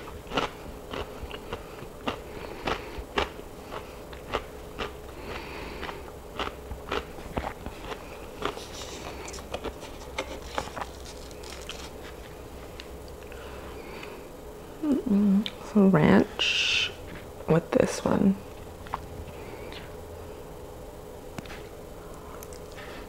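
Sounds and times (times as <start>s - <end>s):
chicken pulled apart crackling: 8.5s - 12.2s.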